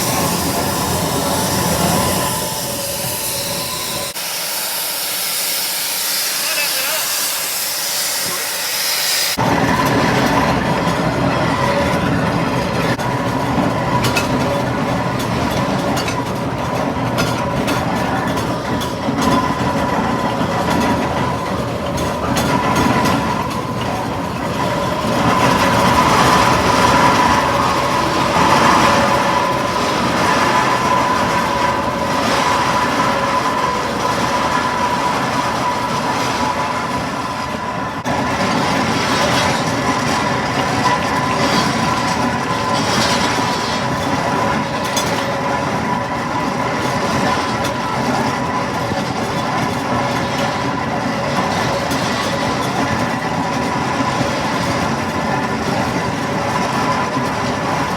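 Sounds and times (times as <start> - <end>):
steam hissing: 0.0 - 11.8, 16.8 - 44.8
constant high whine: 0.0 - 16.4
steam engine clattering and rumbling: 0.0 - 57.9.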